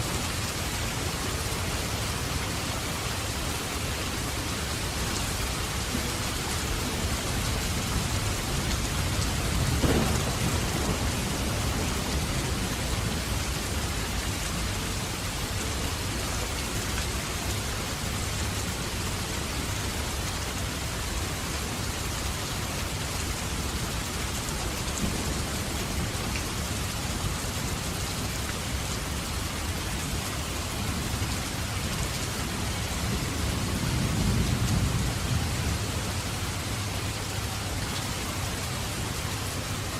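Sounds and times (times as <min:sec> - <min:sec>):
steady rain: 0:00.0 - 0:39.9
thunder rumbling: 0:05.7 - 0:14.8, 0:33.0 - 0:36.4.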